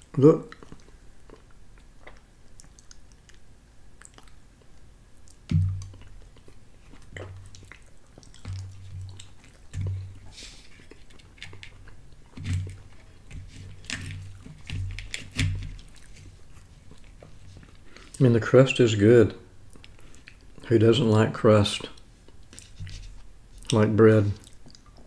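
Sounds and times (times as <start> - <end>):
person chewing: 0.4 - 18.2, 19.6 - 20.6, 22.0 - 25.0
wet mouth clicks: 0.5 - 10.0.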